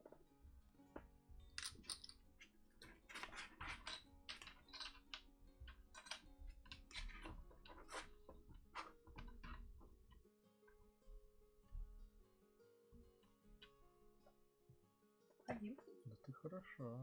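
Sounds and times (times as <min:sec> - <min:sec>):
faint background music: 0:00.0 - 0:17.0
plastic pieces clicking: 0:02.8 - 0:09.6.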